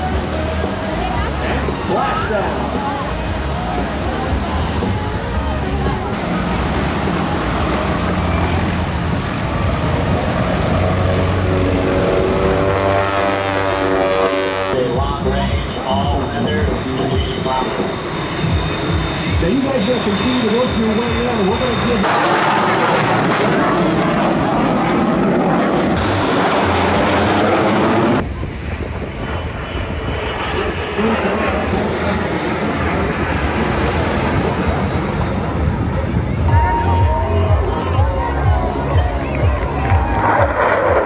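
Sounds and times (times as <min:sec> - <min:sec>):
helicopter rotor and engine: 0:00.0 - 0:12.7, 0:14.8 - 0:22.1, 0:27.7 - 0:40.6
whining engine tones: 0:00.0 - 0:22.3, 0:24.0 - 0:41.0.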